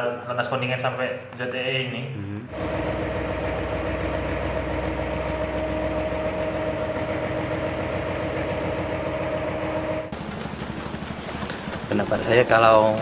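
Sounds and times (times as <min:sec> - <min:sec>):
engine running steadily: 0:02.5 - 0:13.0.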